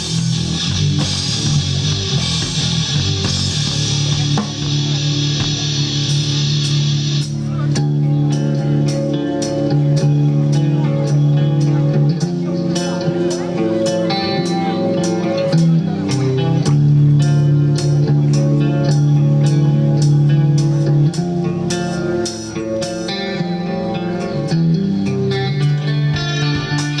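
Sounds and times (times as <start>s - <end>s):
steady drum beat: 0.0s - 23.2s
bass: 0.0s - 27.0s
guitar: 0.0s - 27.0s.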